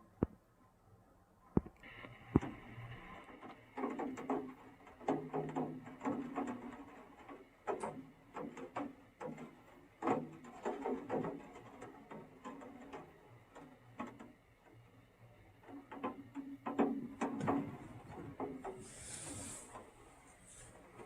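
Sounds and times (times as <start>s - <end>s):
clicking and knocking: 3.2s - 14.9s, 15.6s - 20.0s.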